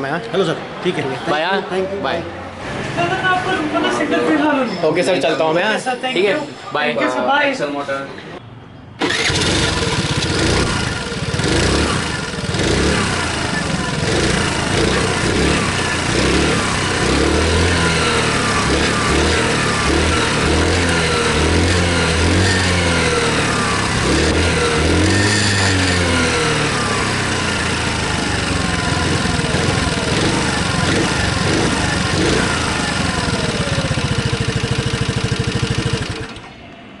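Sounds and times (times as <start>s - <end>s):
motorcycle engines revving: 9.0s - 36.6s.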